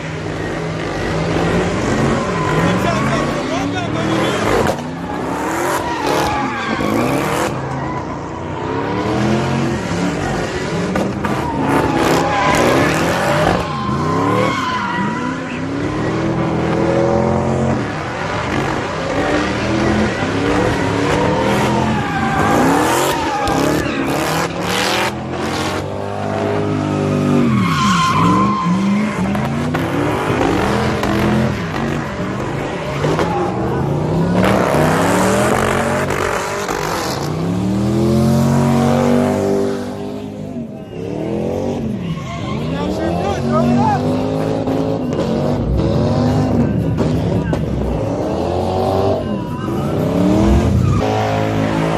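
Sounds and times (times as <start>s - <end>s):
car engines revving: 0.0s - 51.9s
tyres screeching: 0.0s - 51.9s.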